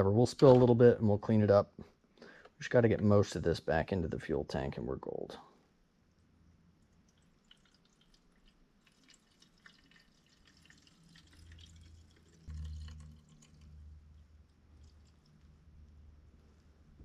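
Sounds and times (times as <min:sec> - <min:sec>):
fuel trickling and dripping: 0:06.2 - 0:16.7.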